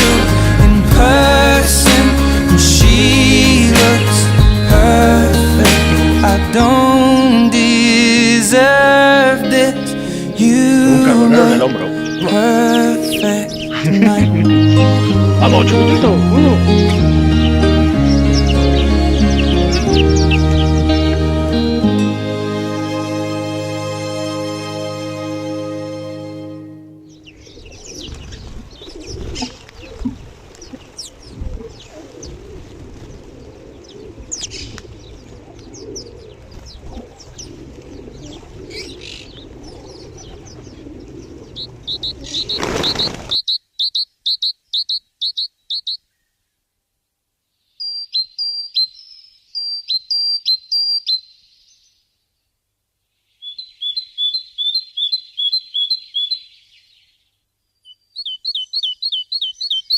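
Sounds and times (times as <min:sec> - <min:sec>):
small songbirds chirping: 0:00.0 - 0:22.0, 0:26.6 - 0:46.6, 0:47.5 - 0:59.9
bird song of rapid high notes: 0:09.5 - 0:21.8, 0:26.6 - 0:46.4, 0:47.6 - 0:52.5, 0:53.3 - 0:59.9.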